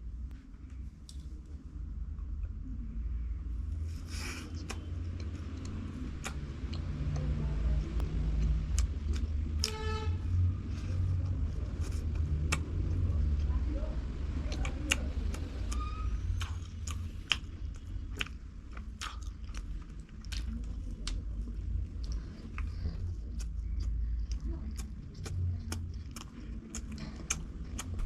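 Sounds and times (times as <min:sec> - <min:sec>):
steady low hum: 0:00.0 - 0:28.0
crisp mouth clicks and crunches: 0:04.5 - 0:07.2, 0:08.4 - 0:09.8, 0:14.4 - 0:28.0
person chewing food: 0:08.0 - 0:09.8, 0:14.4 - 0:28.0.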